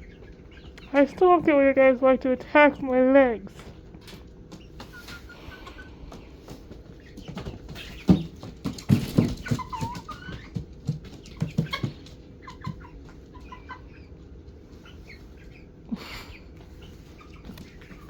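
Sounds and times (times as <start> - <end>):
chicks clucking and cheeping: 0.0 - 18.0
sharp knocks and thumps: 7.2 - 10.0.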